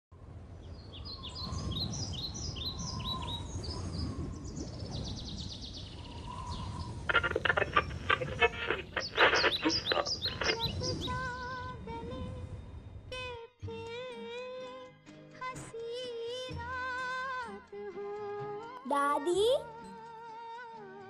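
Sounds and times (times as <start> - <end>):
birds chirping and trilling: 0.6 - 11.3.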